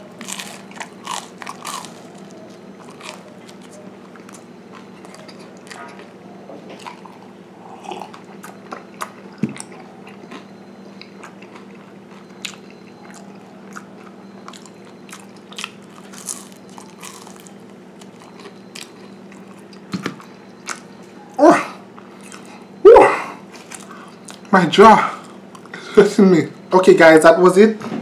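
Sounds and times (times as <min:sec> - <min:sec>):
crunching a rice cracker: 0:00.0 - 0:06.2, 0:08.1 - 0:21.0
steady low hum: 0:00.0 - 0:28.0.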